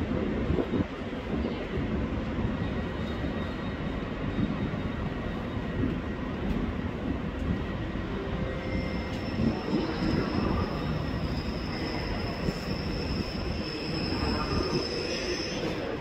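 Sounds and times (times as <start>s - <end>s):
electric train rumbling slowly: 0.0s - 16.0s
high wheel squeal: 8.3s - 16.0s.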